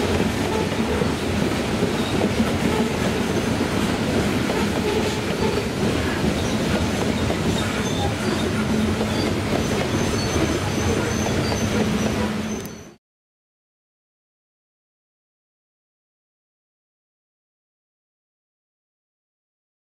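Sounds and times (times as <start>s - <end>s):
train wheels rumbling on rail: 0.0s - 13.0s
faint wheel squeal: 7.5s - 13.0s.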